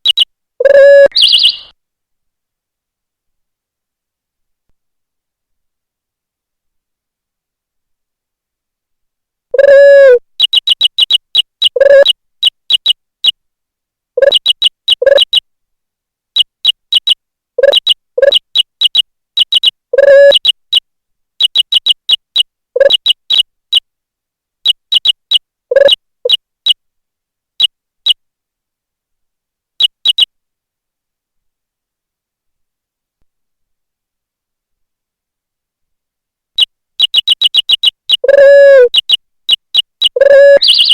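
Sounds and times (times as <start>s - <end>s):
synthetic keystroke beeps: 17.0s - 20.6s.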